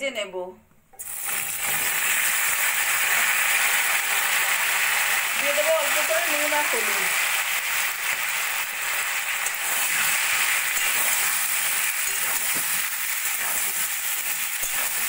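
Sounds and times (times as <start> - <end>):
yam cubes sizzling in oil: 1.0 - 15.0
steel spatula stirring: 8.0 - 15.0.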